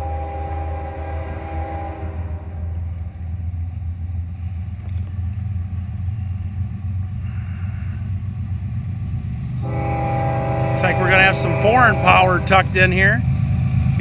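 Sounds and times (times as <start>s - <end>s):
locomotive horn chord: 0.0s - 2.8s, 9.6s - 13.3s
freight train rumbling past: 0.0s - 14.0s.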